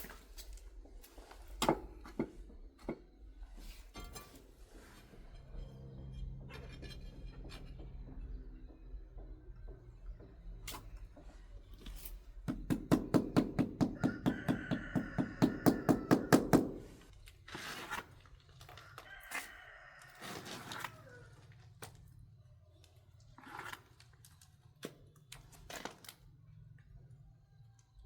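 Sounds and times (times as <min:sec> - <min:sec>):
rapid knocks: 0:12.5 - 0:16.9
rooster crowing: 0:12.8 - 0:17.0, 0:18.8 - 0:21.3.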